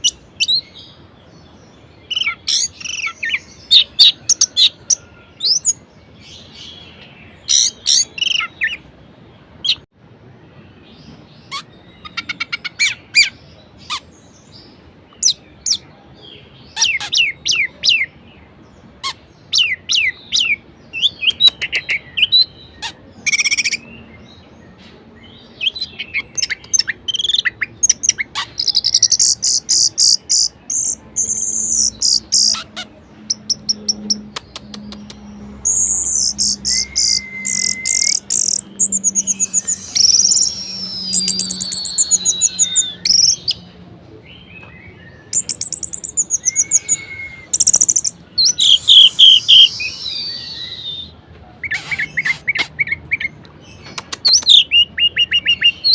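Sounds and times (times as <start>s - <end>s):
thrush singing: 31.6s - 43.8s, 45.4s - 51.1s.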